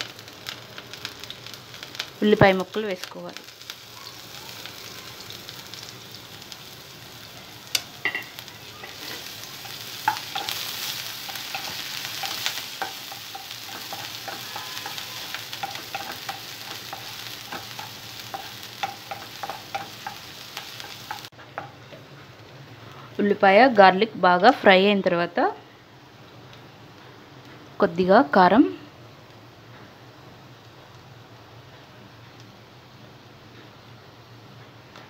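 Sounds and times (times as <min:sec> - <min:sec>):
vegetables sizzling in hot oil: 0:00.0 - 0:22.0
spatula tapping and scraping pan: 0:08.0 - 0:22.0.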